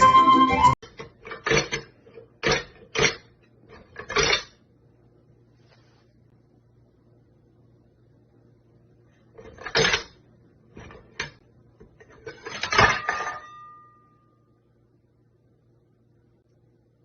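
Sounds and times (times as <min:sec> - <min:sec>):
metallic ring: 0:12.5 - 0:14.6.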